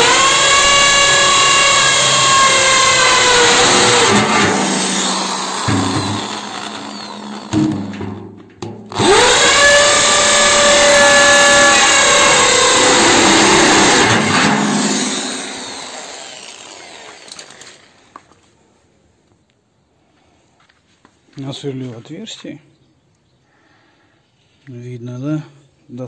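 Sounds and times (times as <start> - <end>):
hammer drill boring into steel: 0.0 - 8.0, 8.9 - 18.1.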